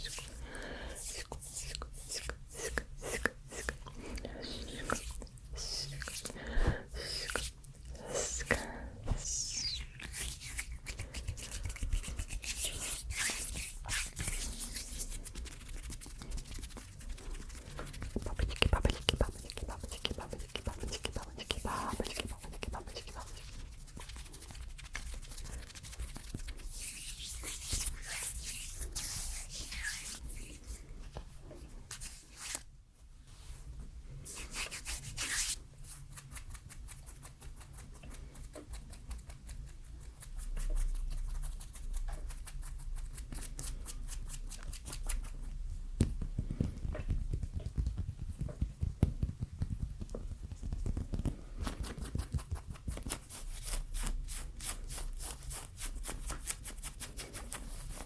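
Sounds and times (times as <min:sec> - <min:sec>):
skin rubbing at microphone: 0:01.0 - 0:30.8, 0:34.2 - 0:38.0.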